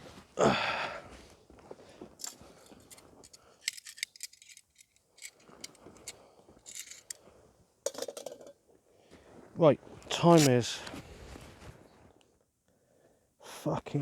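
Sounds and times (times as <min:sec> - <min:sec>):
small hard objects clinking: 0:02.2 - 0:06.1, 0:06.7 - 0:07.2, 0:07.9 - 0:08.5.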